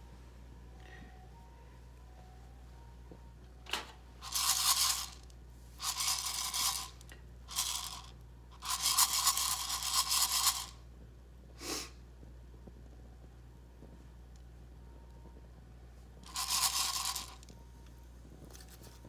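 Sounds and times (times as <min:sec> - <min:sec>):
coffee beans rattling against metal: 0:04.2 - 0:10.8, 0:16.2 - 0:17.5.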